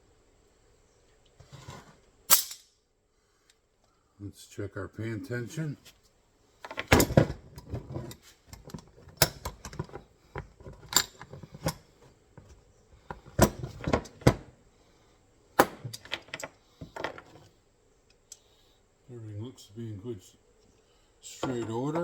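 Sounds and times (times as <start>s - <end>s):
metal trap clicks and clanks: 2.3s - 2.7s.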